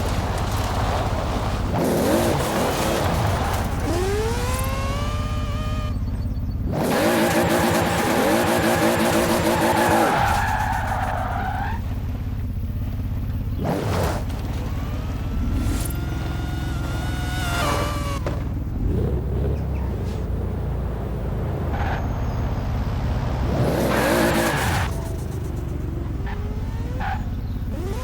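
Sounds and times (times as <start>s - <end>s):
car engine revving with turbo hiss: 13.5s - 21.0s.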